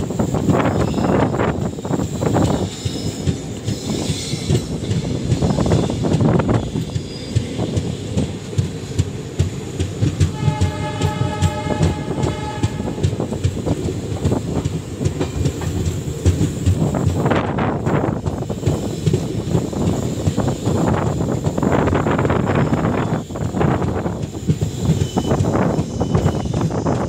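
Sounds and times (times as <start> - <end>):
train wheels rumbling on rails: 0.0 - 27.0
train horn blast: 10.2 - 13.3.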